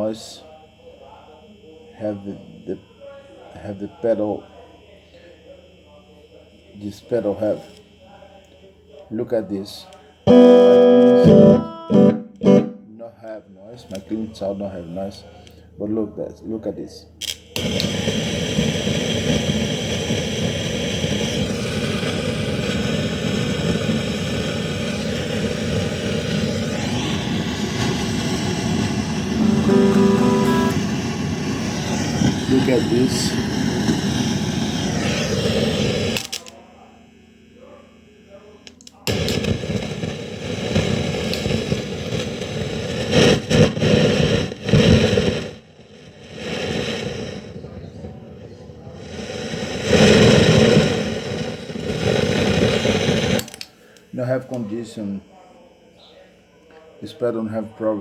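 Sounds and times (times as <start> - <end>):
distorted guitar buzz: 10.3 - 12.9, 26.2 - 36.1
guitar amplifier buzzing hiss: 10.3 - 12.9, 17.5 - 36.7, 38.3 - 47.7, 49.0 - 55.1.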